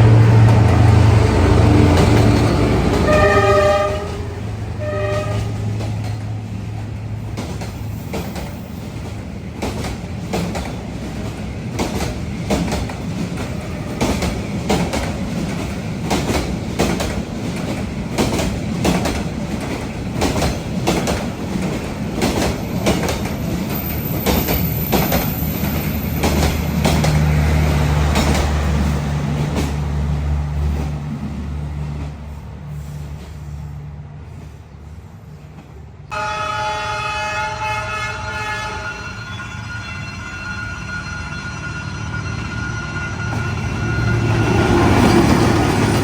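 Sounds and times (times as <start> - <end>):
train wheels clacking on rails: 0.0 - 33.6, 42.8 - 46.0.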